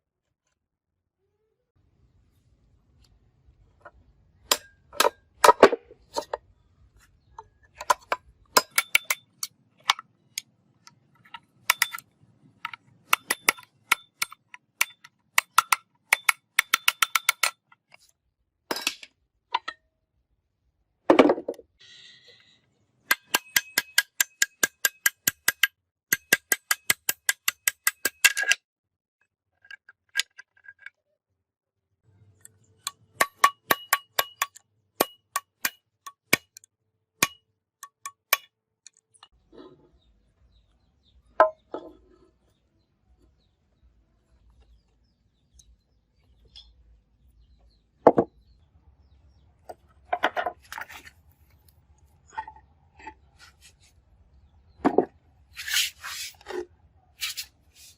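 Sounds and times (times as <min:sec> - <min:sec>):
hammer striking metal: 0:23.1 - 0:28.4, 0:32.8 - 0:36.5, 0:37.2 - 0:38.5.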